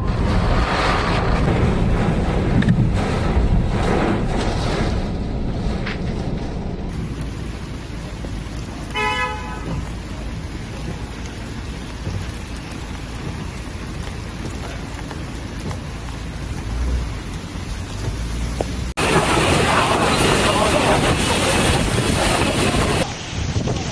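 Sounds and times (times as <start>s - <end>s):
gusting wind: 0.0s - 23.9s
heavy rain: 0.0s - 23.9s
car horn toot: 8.9s - 9.8s.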